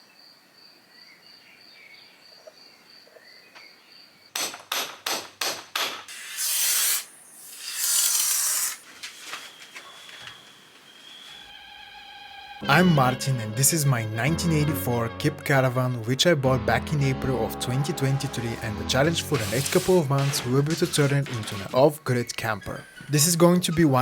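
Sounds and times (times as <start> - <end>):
sharp knocks: 4.4 - 6.1.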